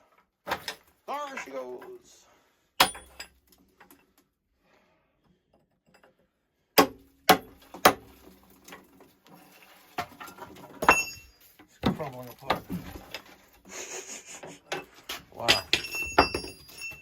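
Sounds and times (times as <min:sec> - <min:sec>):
sharp metallic clanks ringing: 0:10.8 - 0:11.4, 0:15.4 - 0:17.0.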